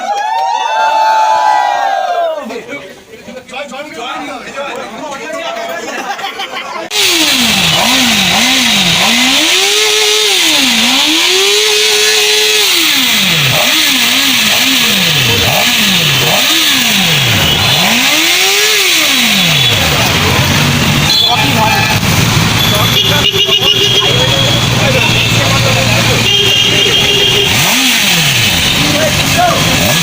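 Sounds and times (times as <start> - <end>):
motorcycle engine revving: 6.9 - 30.0.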